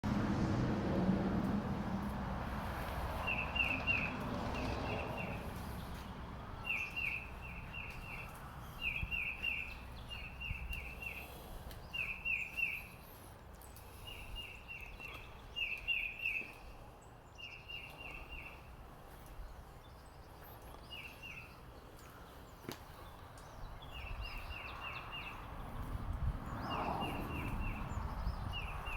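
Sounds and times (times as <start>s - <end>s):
bird chirping: 3.2s - 18.7s.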